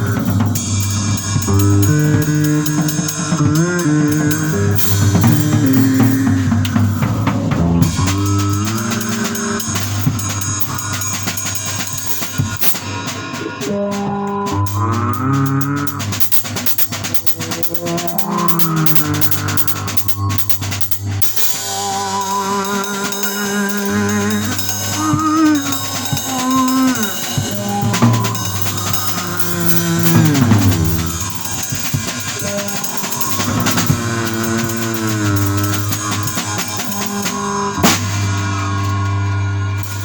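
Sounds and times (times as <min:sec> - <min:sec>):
drums and cymbals: 0:00.0 - 0:40.0
bass sliding notes: 0:29.8 - 0:31.7.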